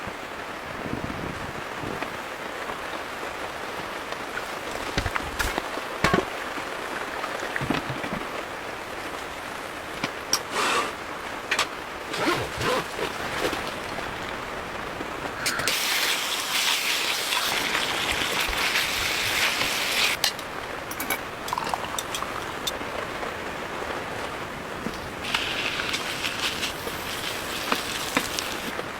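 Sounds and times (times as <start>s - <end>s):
rain falling: 0.0s - 10.4s, 11.0s - 28.9s
loud hiss: 15.4s - 20.2s, 25.2s - 28.8s
sharp raindrop impacts: 24.9s - 28.8s.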